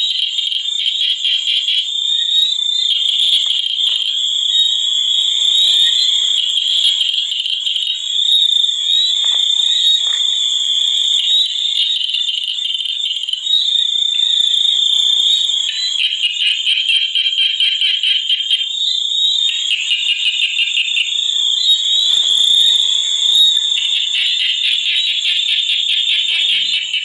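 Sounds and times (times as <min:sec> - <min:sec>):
frogs trilling: 0:00.0 - 0:27.0.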